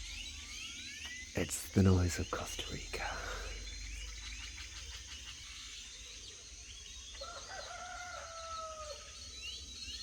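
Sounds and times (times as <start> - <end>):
small birds chirping: 0.0 - 6.9
rooster crowing: 7.2 - 9.0.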